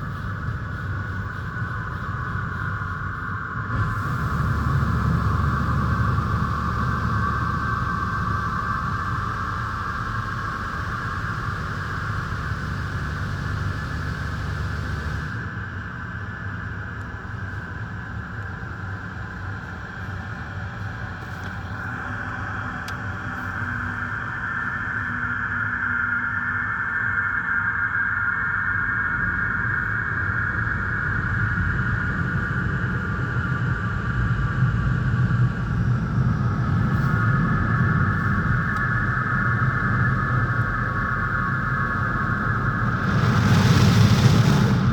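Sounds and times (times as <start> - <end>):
car wash machinery rushing water: 3.8 - 15.4, 37.7 - 44.9
low rumble: 33.7 - 44.9.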